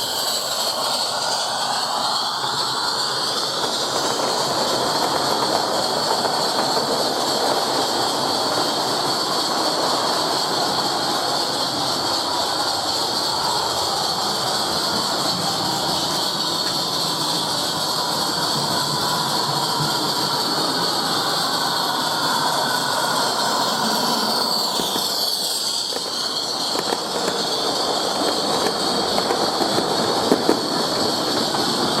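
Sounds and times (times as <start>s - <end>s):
miniature steam locomotive hissing: 0.0s - 32.0s.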